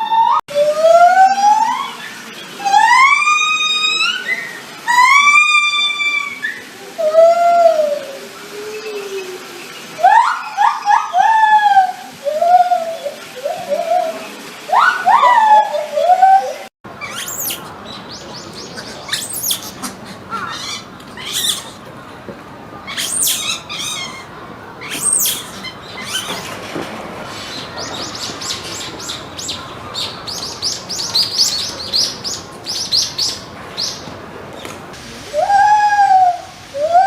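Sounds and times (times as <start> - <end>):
monkey low-pitched call: 0.0 - 9.4, 10.0 - 17.7, 18.6 - 21.8, 22.9 - 26.5, 35.4 - 37.0
monkeys chirping and squeaking: 16.9 - 21.9, 22.9 - 26.7.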